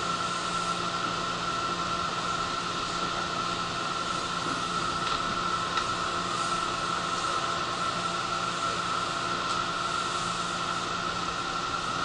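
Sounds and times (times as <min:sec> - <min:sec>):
electric train running rumble and hiss: 0:00.0 - 0:12.0.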